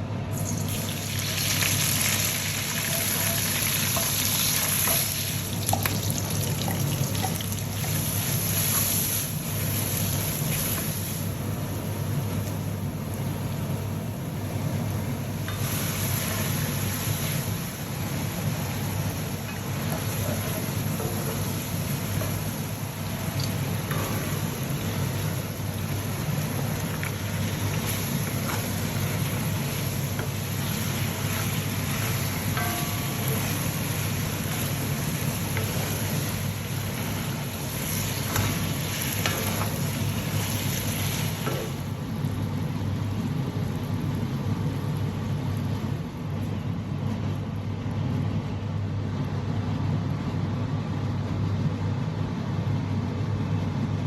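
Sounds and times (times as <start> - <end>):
hot oil sizzling in a pan: 0.4 - 11.5, 14.8 - 45.6
steady low hum: 2.9 - 54.0.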